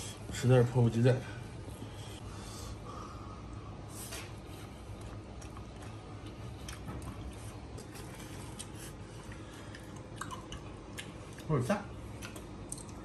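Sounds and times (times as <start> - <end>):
low steady hum: 0.0 - 13.0
man chewing: 3.5 - 13.0.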